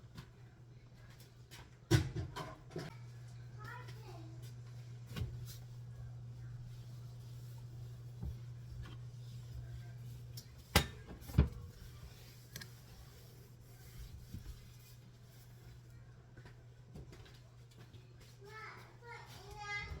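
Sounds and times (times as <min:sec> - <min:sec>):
steady low hum: 0:02.8 - 0:14.8.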